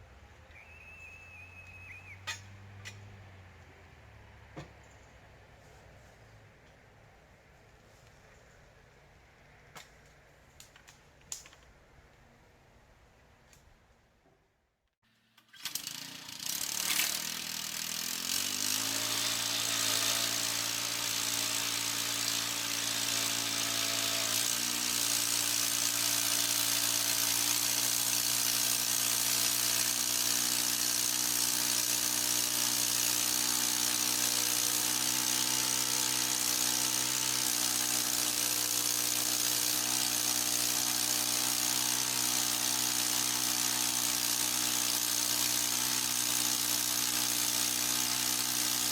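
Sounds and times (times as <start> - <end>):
small gas engine running: 15.5 - 48.9.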